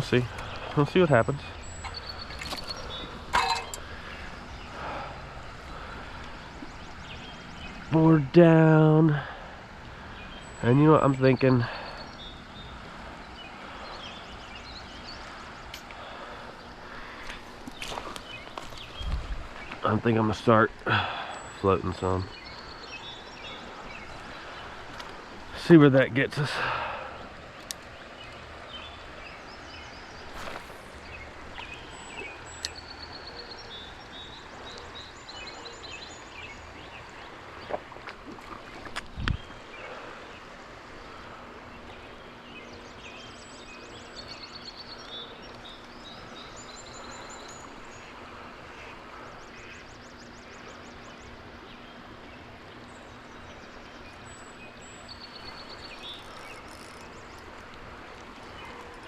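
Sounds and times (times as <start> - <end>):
birds chirping in trills: 0.0 - 38.0, 38.6 - 59.0
creek water rushing: 0.0 - 44.0, 50.6 - 59.0.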